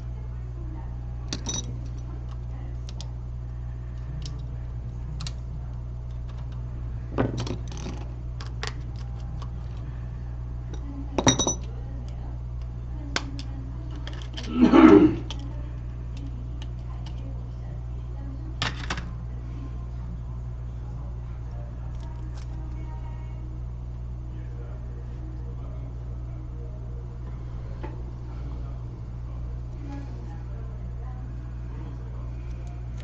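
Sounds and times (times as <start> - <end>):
low electrical hum: 0.0 - 33.0
metal tools clicking and clinking: 1.3 - 2.0.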